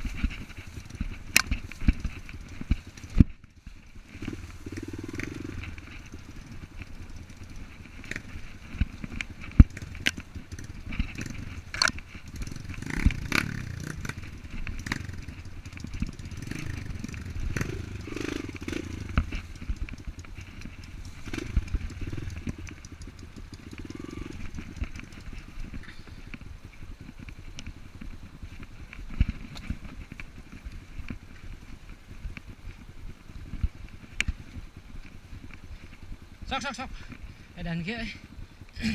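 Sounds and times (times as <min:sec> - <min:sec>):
dirt bike engine running unevenly: 0:00.0 - 0:38.9
sharp knocks and rattles: 0:00.4 - 0:25.6.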